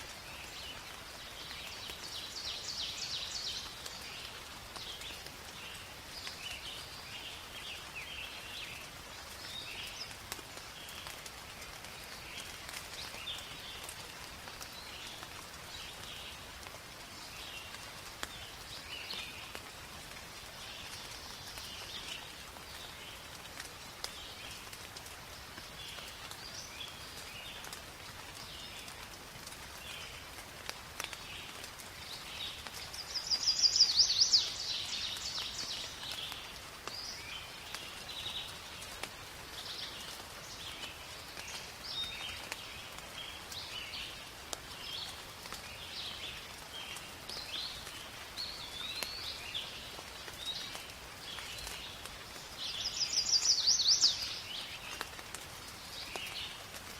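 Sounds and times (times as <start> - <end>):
light rain on foliage: 0.0 - 56.9
birds calling and chirping: 32.4 - 38.6, 52.7 - 55.2.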